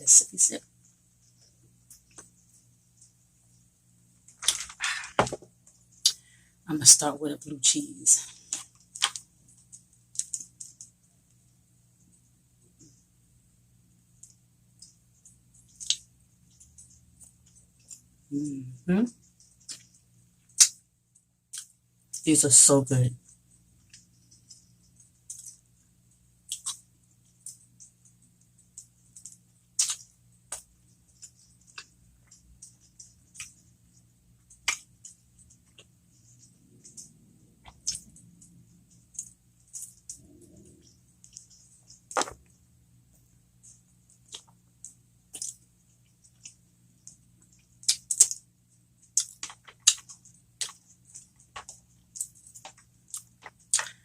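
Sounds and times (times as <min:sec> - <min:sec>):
faint steady hum: 0:00.0 - 0:54.0
mouth clicks and crunches: 0:19.5 - 0:20.8, 0:26.4 - 0:27.6, 0:28.8 - 0:33.6, 0:34.5 - 0:42.6, 0:43.6 - 0:45.6, 0:46.2 - 0:54.0
crunchy food chewing: 0:26.4 - 0:42.6, 0:43.6 - 0:54.0.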